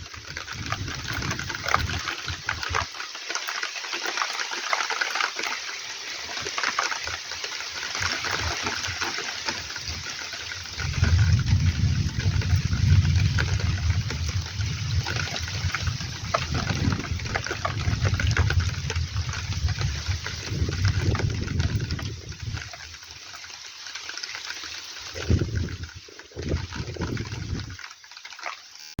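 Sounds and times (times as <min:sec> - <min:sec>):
heavy rain falling: 0:00.0 - 0:29.0
low rumble: 0:10.8 - 0:22.8.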